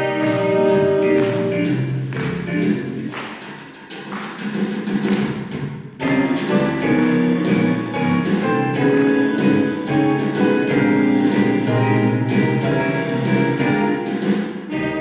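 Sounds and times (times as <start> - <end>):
saxophone ensemble playing: 6.0 - 15.0.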